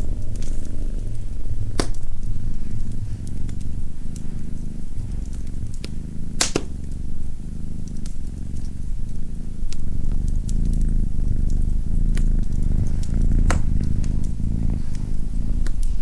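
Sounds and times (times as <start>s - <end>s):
cat purring: 0.0s - 16.0s
wood fire crackling: 0.0s - 16.0s.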